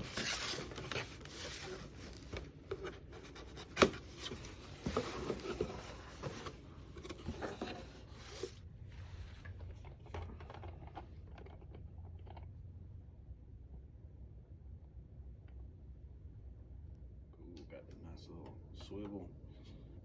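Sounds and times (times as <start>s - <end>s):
packaging rustling and scraping: 0.0s - 11.4s.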